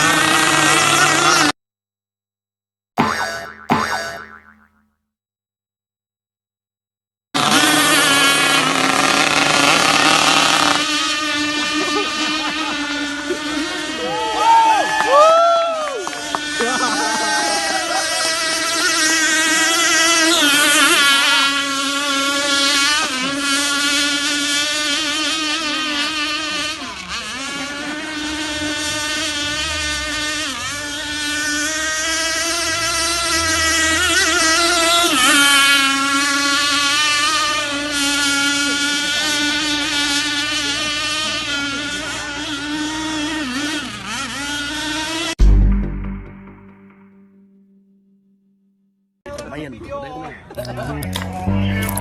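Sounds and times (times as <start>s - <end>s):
model boat engines buzzing: 0.0s - 1.5s, 7.4s - 45.4s.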